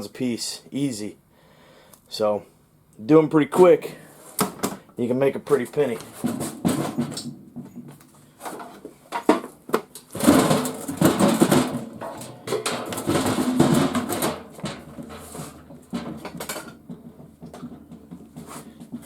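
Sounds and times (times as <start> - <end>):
metal and plastic parts rattling: 5.5 - 19.0.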